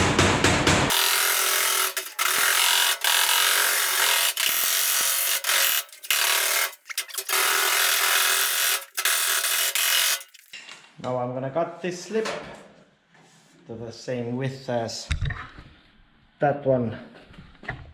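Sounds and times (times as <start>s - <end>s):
power tool running in bursts: 0.9s - 10.5s.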